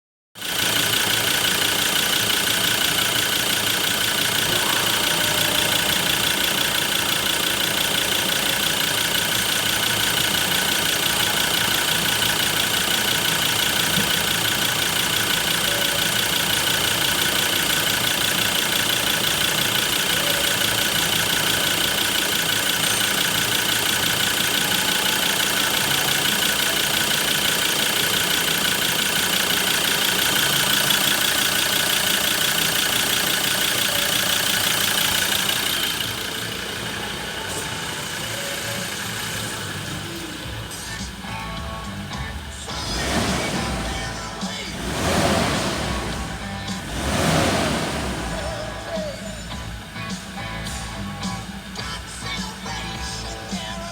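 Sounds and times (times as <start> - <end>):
diesel engine idling: 0.4 - 53.9.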